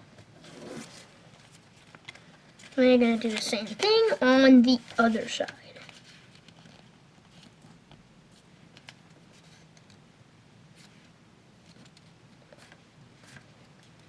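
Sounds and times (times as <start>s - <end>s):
paper being folded and creased: 0.2s - 10.0s.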